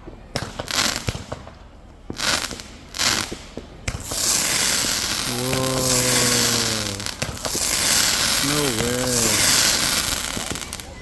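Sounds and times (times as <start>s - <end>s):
firework bangs: 2.1s - 10.9s
fireworks crackling: 2.1s - 11.0s.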